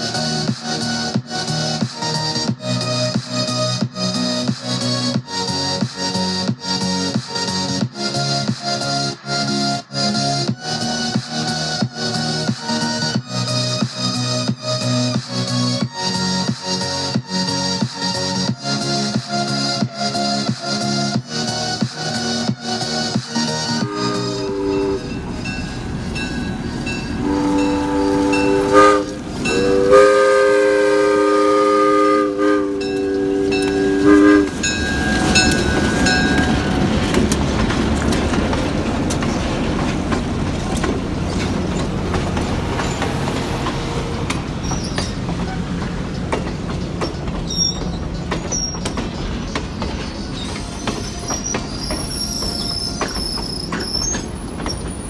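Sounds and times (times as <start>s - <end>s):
train wheels rumbling and clacking: 0.0s - 55.0s
faint high wheel squeal: 23.0s - 55.0s
train horn blasts: 23.7s - 39.3s.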